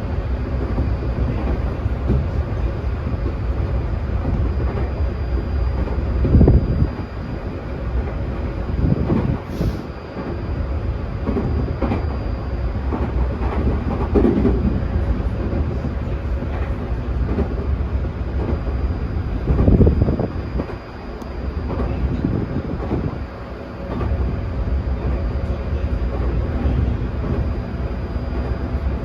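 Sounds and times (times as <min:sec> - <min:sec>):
faint high whine: 0:00.0 - 0:29.0
train wheel-on-rail rumble: 0:00.0 - 0:29.0.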